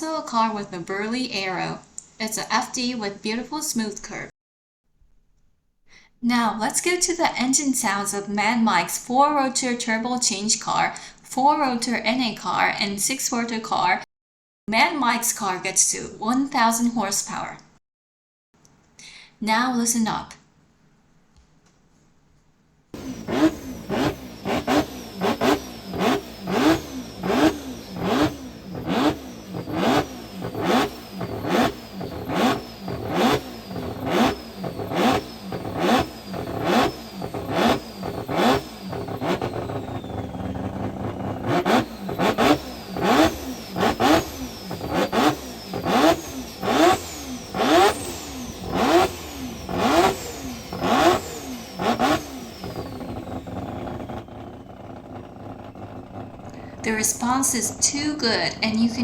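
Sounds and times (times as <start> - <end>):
rotary engine revving: 23.0 - 59.0.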